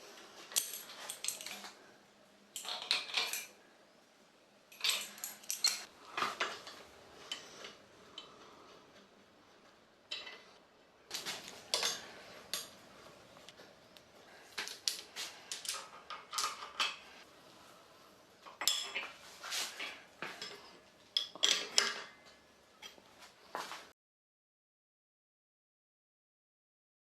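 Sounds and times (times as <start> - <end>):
hard objects clinking and clattering: 0.5 - 1.8, 2.5 - 3.6, 4.7 - 8.3, 11.1 - 12.8, 14.3 - 17.3.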